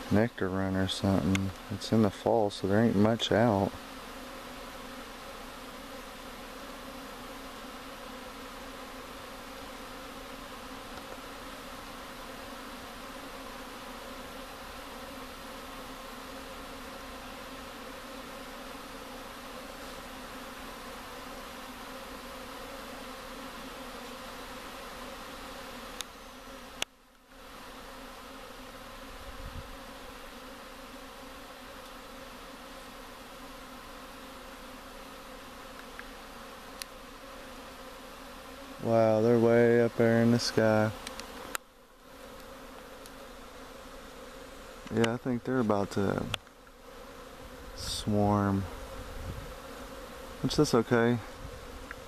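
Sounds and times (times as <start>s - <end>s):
honey bees buzzing: 0.0s - 52.0s.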